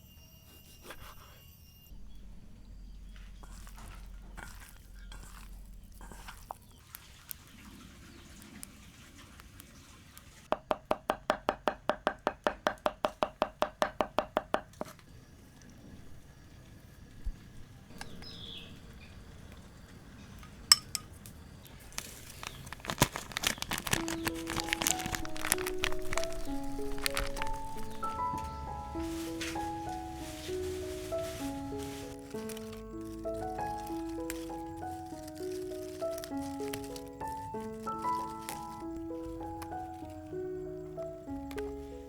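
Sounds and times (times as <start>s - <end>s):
soft music: 23.8s - 42.0s.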